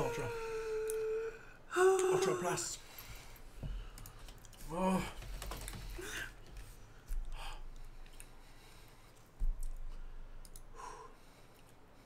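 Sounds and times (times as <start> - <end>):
person humming mm: 0.0 - 2.4
soft chewing and mouth clicks: 7.0 - 10.7, 11.4 - 12.0
breath: 9.9 - 12.0.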